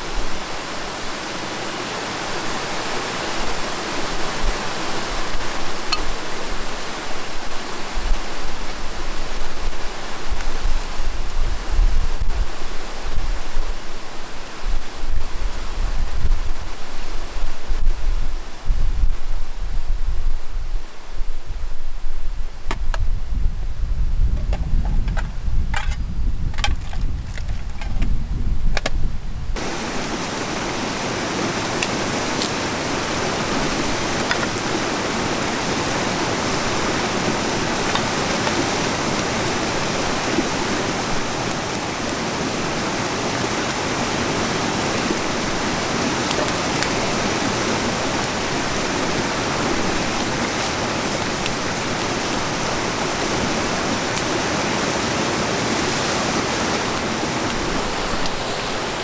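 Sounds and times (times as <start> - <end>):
river water rushing: 0.0 - 10.3, 29.6 - 59.0
wind buffeting microphone: 3.4 - 59.0.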